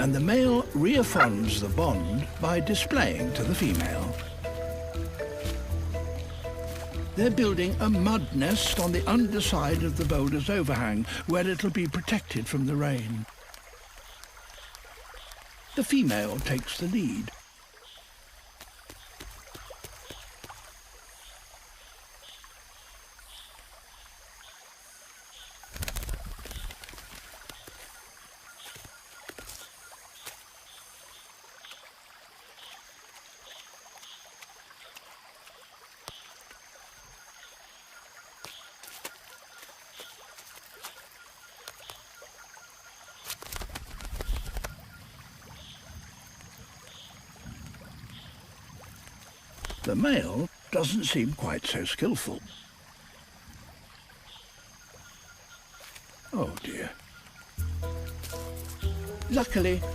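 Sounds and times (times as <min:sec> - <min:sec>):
small clicks and drips: 0:10.0 - 0:51.4
rustle: 0:12.7 - 0:50.8, 0:52.2 - 0:59.3
low rustling flutter: 0:25.6 - 0:28.0, 0:43.2 - 0:44.9
high insect whine: 0:52.4 - 0:59.9.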